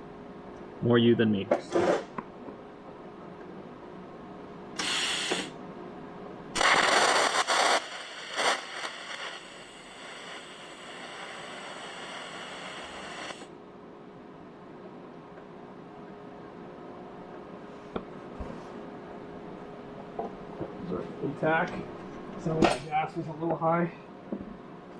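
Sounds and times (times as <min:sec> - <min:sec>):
faint high whines: 0:02.7 - 0:13.6
welder crackling hiss: 0:04.8 - 0:05.6, 0:06.6 - 0:13.5.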